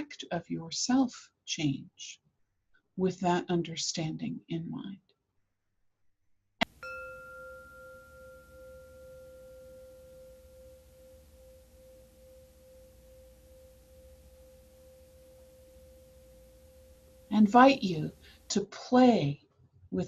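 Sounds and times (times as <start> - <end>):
meditation chime ringing: 6.6 - 18.5.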